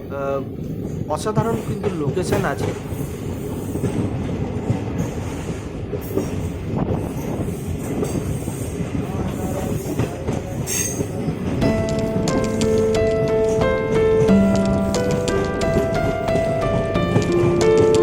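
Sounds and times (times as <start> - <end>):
train wheels clattering over rails: 0.6 - 18.0.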